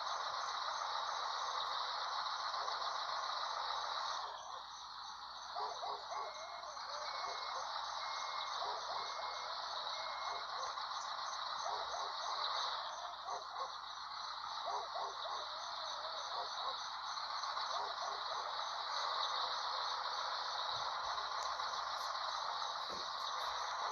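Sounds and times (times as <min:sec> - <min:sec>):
truck running: 0:00.0 - 0:23.9
reversing alarm beeps: 0:05.4 - 0:13.7, 0:14.6 - 0:23.9.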